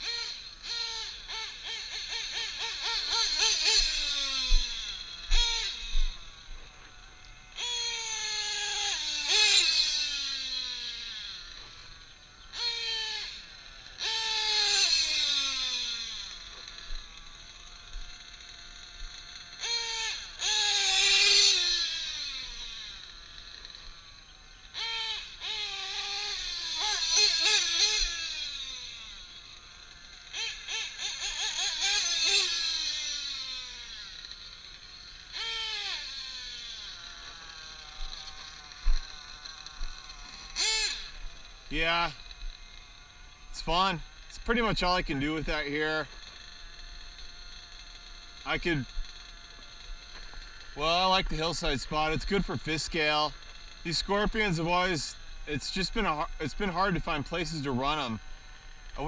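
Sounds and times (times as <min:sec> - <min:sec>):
model engine revving: 0:00.0 - 0:59.0.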